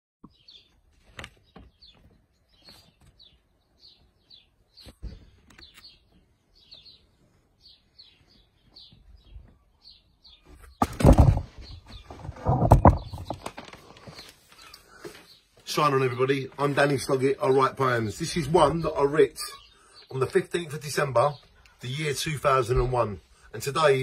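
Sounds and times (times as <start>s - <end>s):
small bird chirping: 0.2s - 15.8s
loud rustling on microphone: 10.7s - 15.8s.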